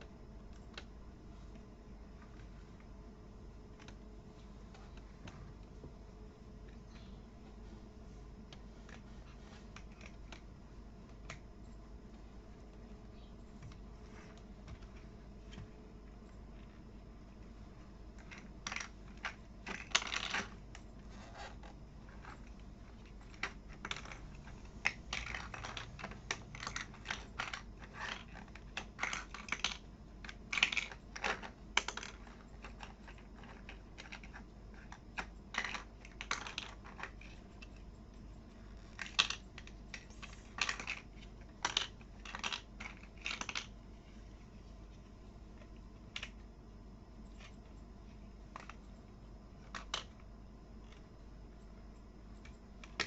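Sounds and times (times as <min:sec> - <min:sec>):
plastic toy bricks clicking: 0:18.2 - 0:20.7, 0:23.0 - 0:37.8, 0:38.9 - 0:43.8, 0:49.6 - 0:50.2, 0:52.4 - 0:53.0.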